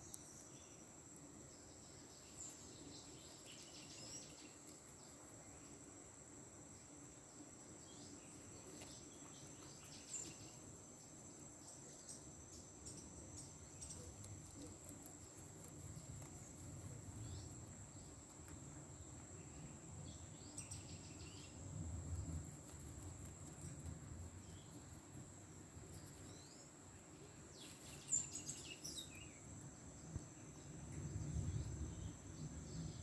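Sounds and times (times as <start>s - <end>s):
crickets trilling: 0.0s - 33.0s.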